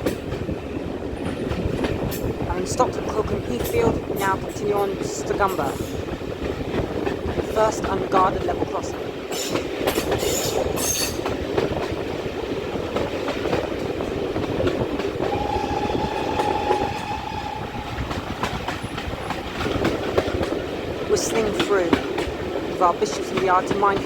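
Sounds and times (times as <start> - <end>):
train wheels clickety-clack: 0.0 - 24.0
steam whistle: 15.2 - 19.2.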